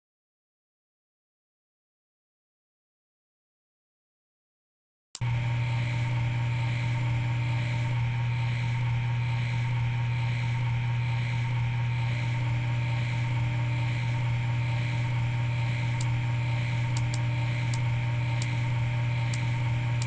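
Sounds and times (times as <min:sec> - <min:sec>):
low mechanical hum: 0:05.2 - 0:20.0.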